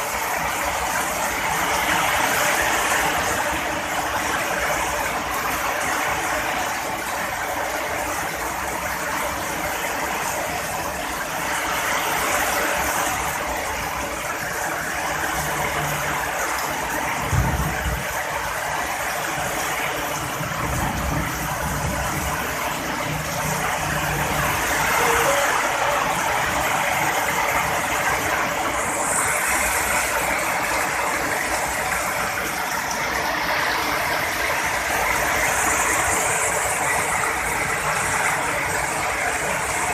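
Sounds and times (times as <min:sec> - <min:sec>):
heavy rain hissing: 0:00.0 - 0:39.9
thunder rumbling: 0:11.4 - 0:39.9.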